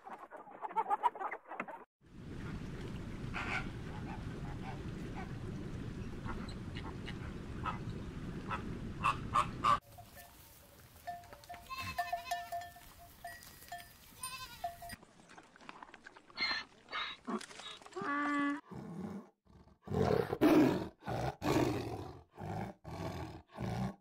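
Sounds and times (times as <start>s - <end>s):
low steady rumble: 2.1s - 9.8s
flamingos honking: 6.3s - 12.6s
goat bleating: 11.4s - 12.8s, 14.2s - 15.0s.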